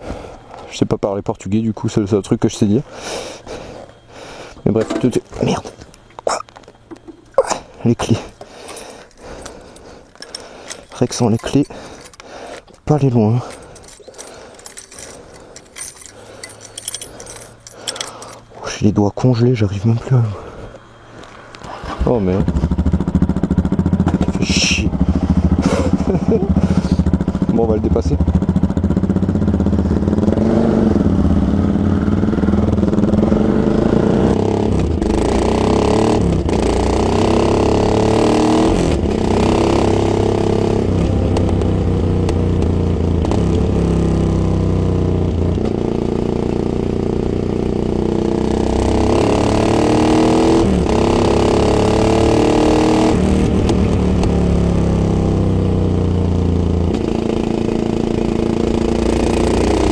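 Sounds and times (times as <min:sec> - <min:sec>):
motorcycle engine accelerating: 0:13.1 - 0:18.4, 0:21.6 - 0:59.9.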